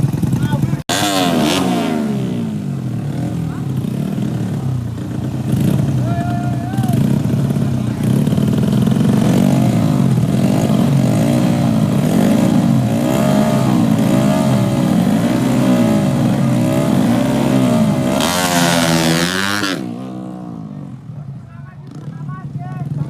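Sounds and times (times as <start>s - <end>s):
motorcycle engines revving: 0.0s - 23.0s.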